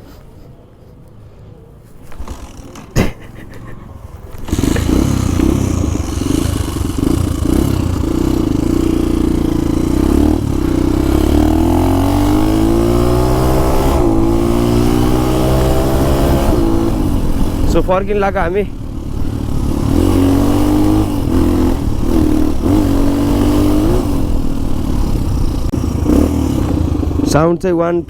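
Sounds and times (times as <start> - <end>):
motorcycle accelerating: 2.0 - 27.7.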